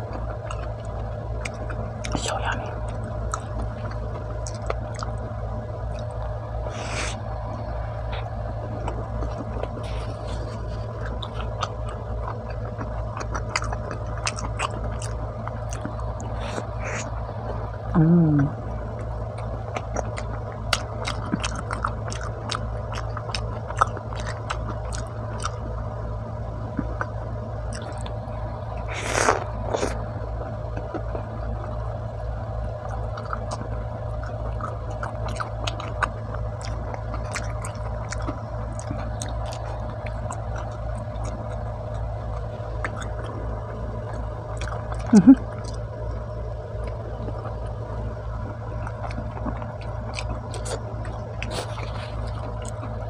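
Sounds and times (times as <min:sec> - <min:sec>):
chewing pizza: 0:00.0 - 0:53.0
steady low hum: 0:00.0 - 0:53.0
hummed falling-pitch sound: 0:14.9 - 0:21.0, 0:38.0 - 0:53.0.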